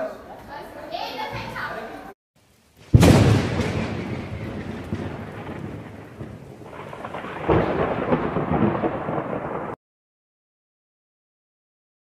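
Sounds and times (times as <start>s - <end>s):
rain hissing: 2.4s - 9.8s
thunder rumbling: 2.8s - 9.8s.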